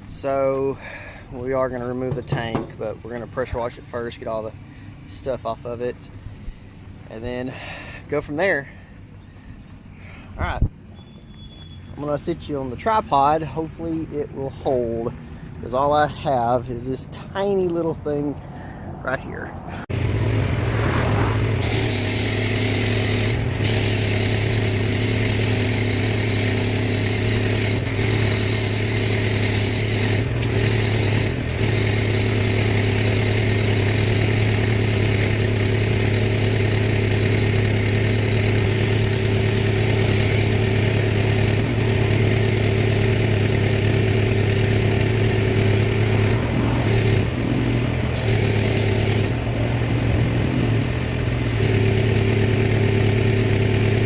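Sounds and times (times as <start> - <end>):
pressure washer engine running: 1.9 - 3.6, 19.9 - 54.0.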